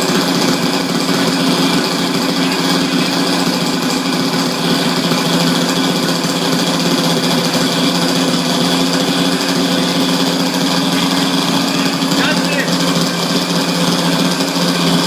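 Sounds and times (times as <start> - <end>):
quadcopter engine buzzing: 0.0 - 15.0.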